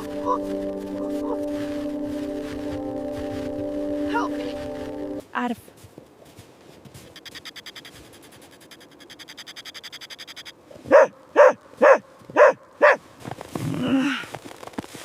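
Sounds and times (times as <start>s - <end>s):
faint fast pulsing: 7.0s - 10.5s
dog barking: 10.9s - 13.0s.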